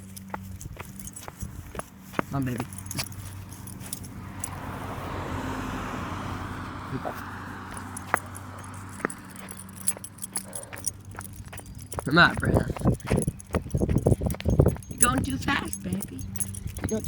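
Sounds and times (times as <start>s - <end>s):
light metallic jingling: 0.0s - 17.0s
car passing by: 2.2s - 11.0s.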